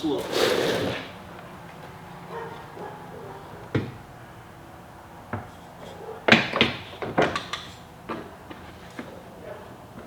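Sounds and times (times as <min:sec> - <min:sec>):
radiator part knocking and clattering: 0:03.6 - 0:04.1, 0:05.2 - 0:09.1.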